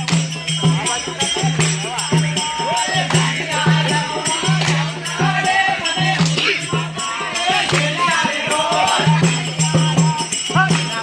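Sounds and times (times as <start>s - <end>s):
folk singing: 0.0s - 11.0s
rattling hand percussion: 0.0s - 11.0s.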